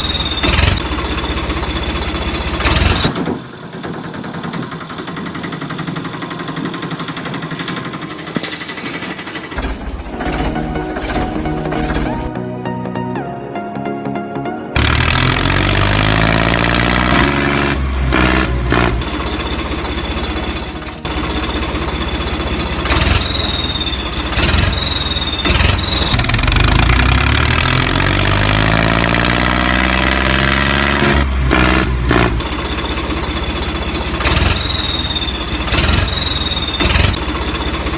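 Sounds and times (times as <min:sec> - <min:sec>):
tractor engine revving: 0:00.0 - 0:12.4, 0:14.8 - 0:37.9
high whistling tones: 0:23.0 - 0:26.2, 0:34.4 - 0:37.2.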